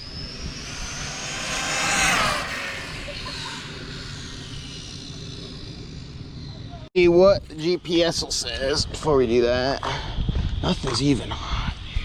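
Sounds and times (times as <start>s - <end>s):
rc car motor whine passing: 0.0s - 6.8s.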